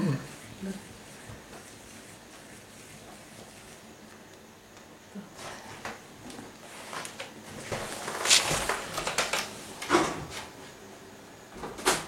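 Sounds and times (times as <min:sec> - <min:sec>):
kitchen knocks and clatters: 0:07.6 - 0:10.5, 0:11.5 - 0:12.0.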